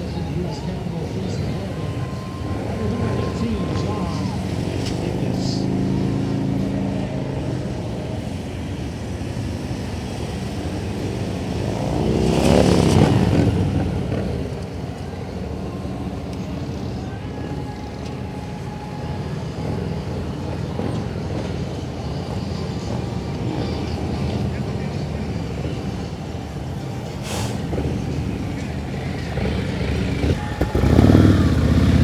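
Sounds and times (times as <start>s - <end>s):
motorcycle engine running: 1.2s - 18.6s, 27.6s - 32.0s.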